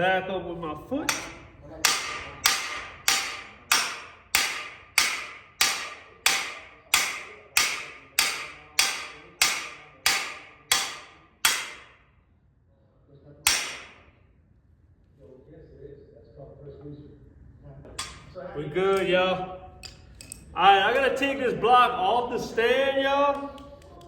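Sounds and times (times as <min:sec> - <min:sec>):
hammer striking metal tool: 0:01.1 - 0:12.1, 0:13.5 - 0:14.2, 0:18.0 - 0:18.3.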